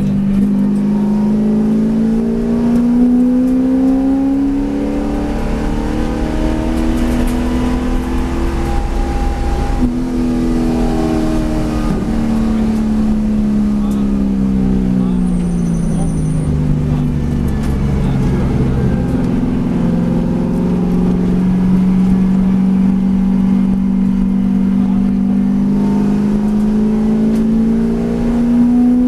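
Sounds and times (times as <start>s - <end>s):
race car engine revving: 0.0s - 29.0s.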